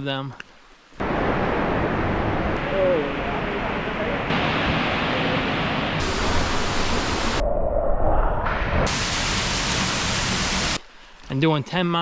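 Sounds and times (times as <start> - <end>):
waterfall rushing: 1.0 - 7.4, 8.9 - 10.8.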